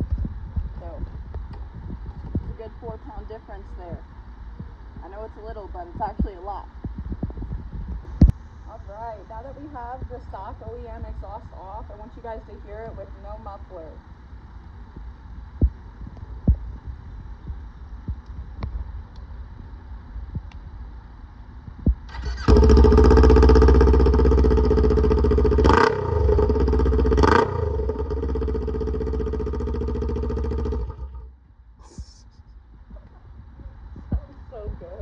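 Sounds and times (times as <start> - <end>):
motorcycle engine without muffler: 21.9 - 31.4.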